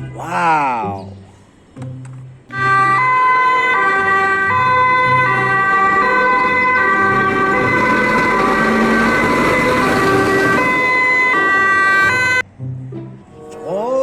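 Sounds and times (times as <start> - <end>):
toy electronic siren: 2.5 - 12.4.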